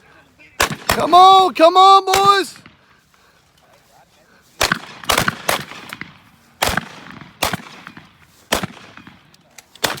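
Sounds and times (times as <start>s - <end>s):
shotgun shots with echo: 4.6s - 9.2s, 9.8s - 10.0s.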